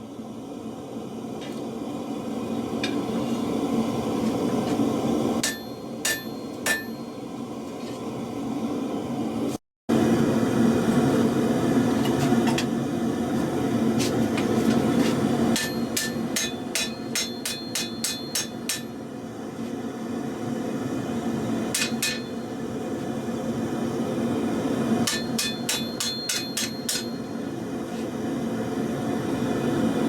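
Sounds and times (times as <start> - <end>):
hammer striking steel on anvil: 5.4 - 7.2, 15.5 - 19.0, 21.7 - 22.6, 25.0 - 27.4.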